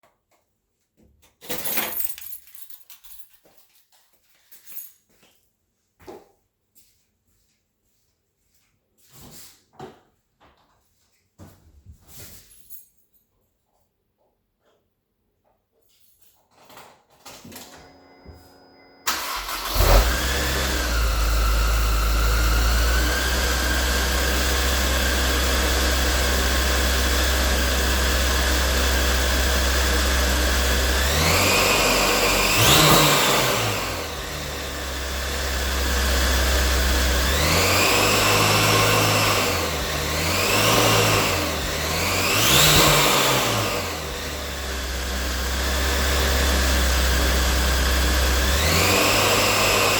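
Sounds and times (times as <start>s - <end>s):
car engine cranking and idling: 17.6s - 49.9s
high supercharger whine: 17.7s - 49.9s
engine revving: 19.1s - 49.9s.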